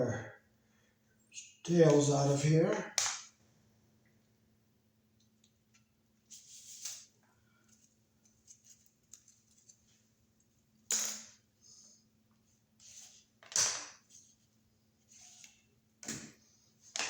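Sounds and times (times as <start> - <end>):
small clicks and rustles: 5.2 - 10.6.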